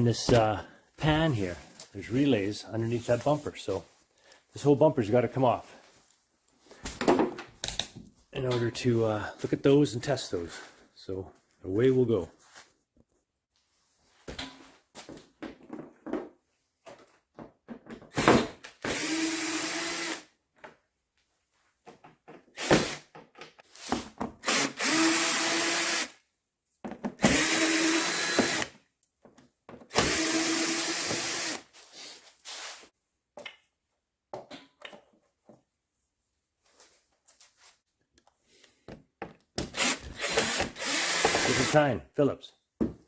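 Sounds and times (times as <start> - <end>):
power drill running: 18.3 - 20.3, 24.4 - 26.2, 27.2 - 28.7, 29.9 - 31.6, 39.6 - 41.8.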